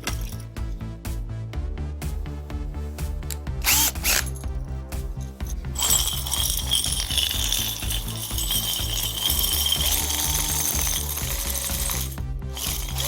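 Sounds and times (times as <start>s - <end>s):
background music with bass: 0.0s - 13.0s
electric drill whining: 3.6s - 4.4s, 5.8s - 13.0s.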